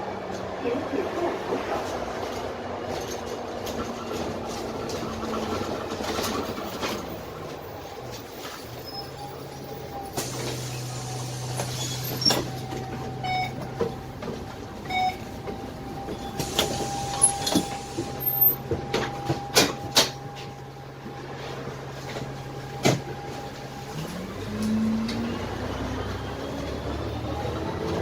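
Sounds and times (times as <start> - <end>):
diesel bus engine idling: 0.0 - 28.0
bus body knocks and rattles: 1.9 - 8.6, 11.6 - 20.6, 22.0 - 23.5.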